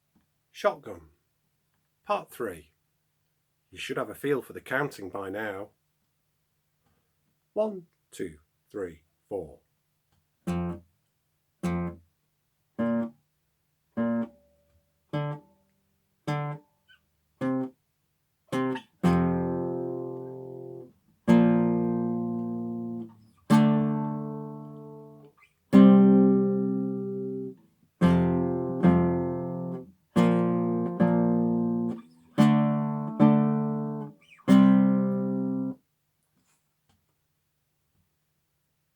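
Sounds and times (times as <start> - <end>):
acoustic guitar strumming chords: 10.5 - 10.8, 14.0 - 14.4, 16.3 - 16.6, 17.4 - 17.7, 18.5 - 35.8.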